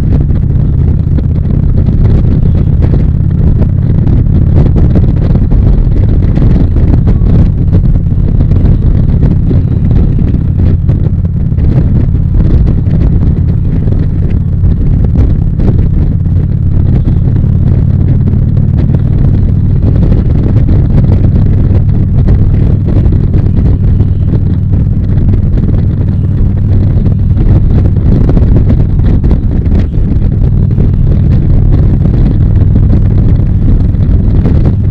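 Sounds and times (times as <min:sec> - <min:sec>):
motorcycle engine running: 0:00.0 - 0:34.9
wind rush on microphone: 0:00.0 - 0:34.9.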